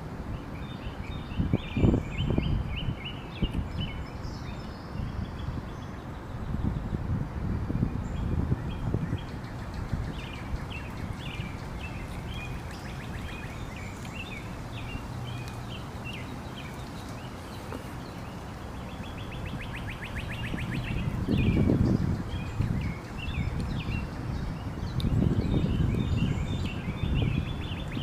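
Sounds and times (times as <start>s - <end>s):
small birds chirping: 8.0s - 28.0s.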